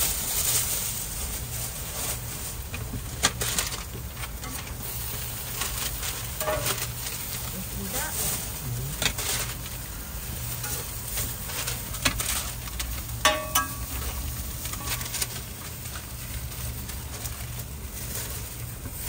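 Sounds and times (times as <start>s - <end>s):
food sizzling on a griddle: 0.0s - 19.0s
low steady hum: 0.0s - 19.0s
metal clink: 13.2s - 14.1s.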